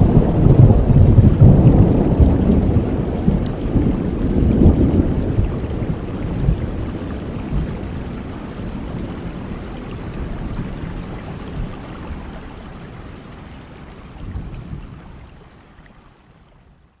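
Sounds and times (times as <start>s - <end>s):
thunder rumbling: 0.0s - 13.0s
steady rain: 0.0s - 17.0s.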